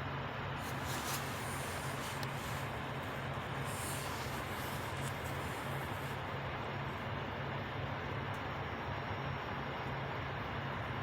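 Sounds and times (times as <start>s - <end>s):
truck engine idling: 0.5s - 7.7s.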